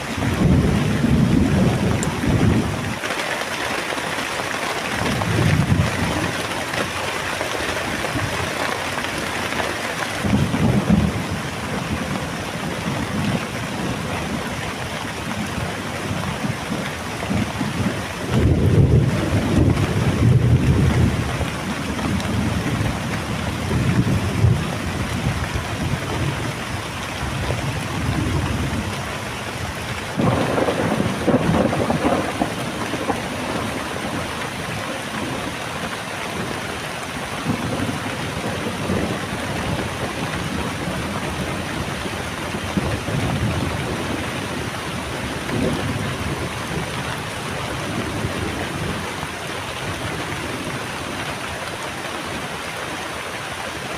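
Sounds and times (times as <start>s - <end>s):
thunder rumbling: 0.0s - 3.0s, 5.0s - 9.3s, 10.2s - 51.2s
heavy rain falling: 0.0s - 53.9s.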